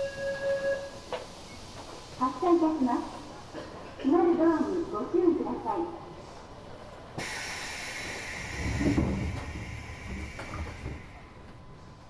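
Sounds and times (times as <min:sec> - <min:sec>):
compressed air hiss: 0:07.2 - 0:11.2
train doors thudding shut: 0:07.2 - 0:11.6.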